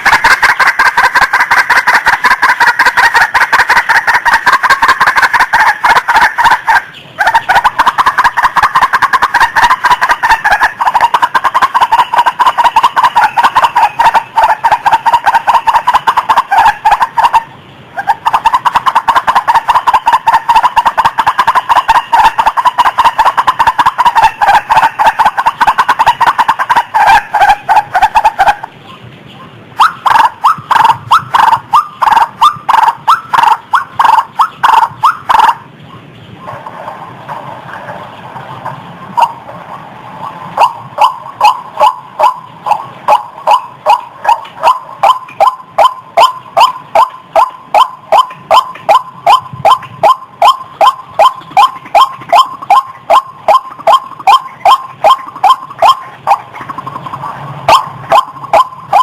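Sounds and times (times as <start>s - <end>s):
waterhen calling: 0.0s - 59.0s.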